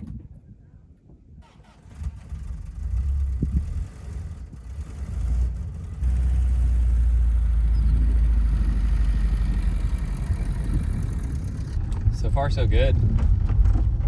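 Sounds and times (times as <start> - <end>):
road noise: 0.0 - 14.0
van engine rumble: 0.0 - 14.0.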